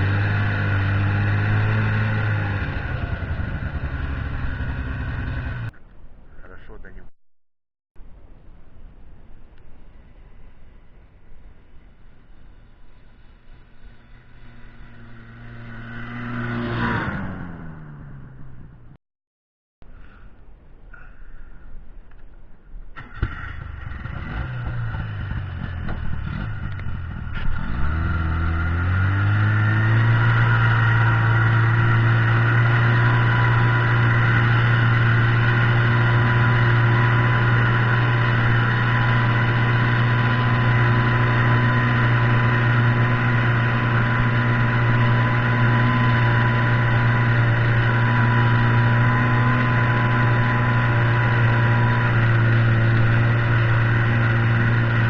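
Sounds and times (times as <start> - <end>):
snowmobile engine revving: 0.0 - 5.7, 13.0 - 18.5, 23.0 - 55.0.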